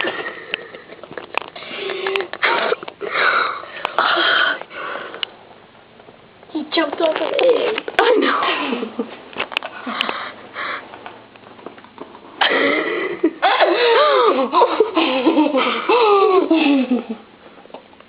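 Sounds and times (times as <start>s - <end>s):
people laughing: 12.4s - 17.2s.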